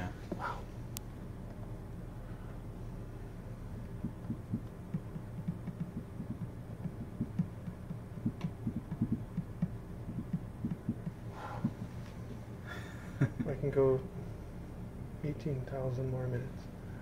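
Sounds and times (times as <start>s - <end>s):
low machine hum: 0.0s - 17.0s
soft low knocks: 4.0s - 11.8s.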